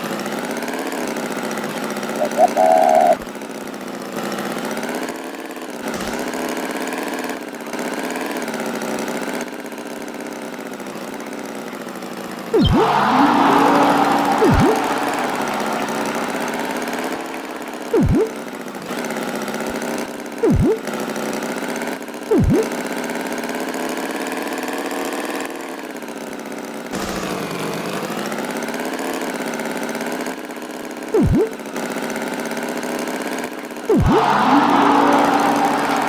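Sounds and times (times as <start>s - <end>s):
cartoon tractor engine running: 1.6s - 3.2s, 12.6s - 19.2s, 20.4s - 20.9s, 22.3s - 22.8s, 31.2s - 31.6s, 33.9s - 36.0s
swooping pitch sound effect: 2.2s - 3.2s, 12.6s - 18.4s, 20.4s - 20.8s, 22.3s - 22.7s, 31.2s - 31.6s, 33.9s - 36.0s.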